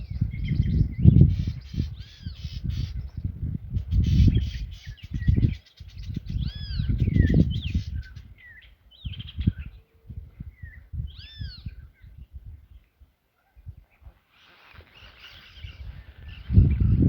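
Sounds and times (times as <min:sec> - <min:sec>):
wild birds chattering: 0:00.0 - 0:17.0
bird calls rising and falling: 0:13.9 - 0:17.0.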